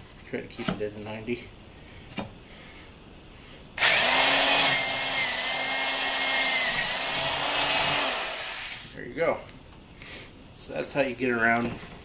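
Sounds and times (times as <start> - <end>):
electric drill boring plywood: 3.8 - 8.9.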